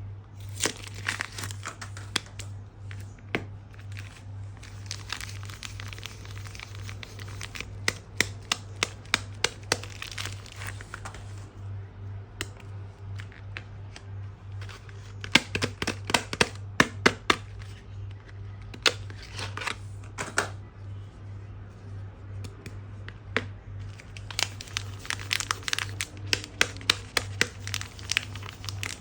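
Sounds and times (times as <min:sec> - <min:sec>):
steady low hum: 0:00.0 - 0:29.0
packaging crinkling and tearing: 0:00.4 - 0:11.4, 0:23.8 - 0:29.0.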